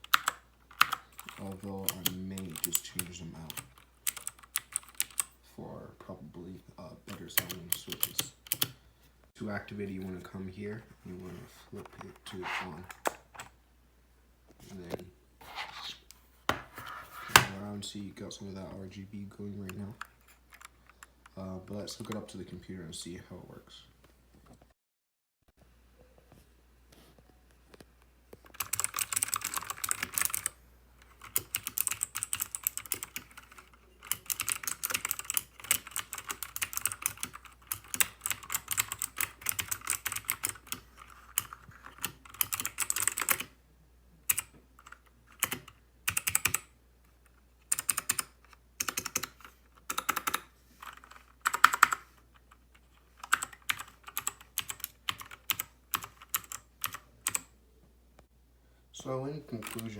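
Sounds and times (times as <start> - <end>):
mechanical keyboard typing: 0.0 - 5.3, 7.4 - 8.8, 28.5 - 43.5, 44.3 - 46.7, 47.7 - 52.1, 53.2 - 57.5, 59.6 - 59.9.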